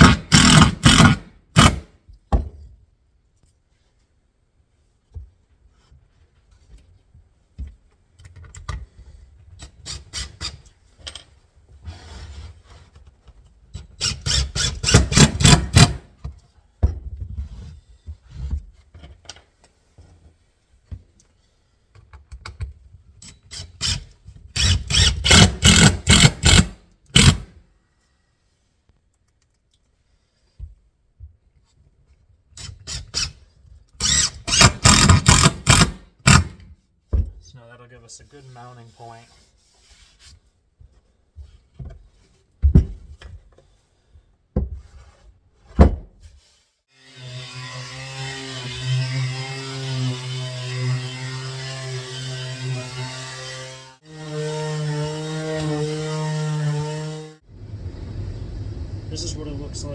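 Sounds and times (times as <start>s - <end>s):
power drill driving screws into wood: 0.0s - 2.0s, 14.0s - 16.1s, 23.5s - 27.6s, 34.0s - 36.7s.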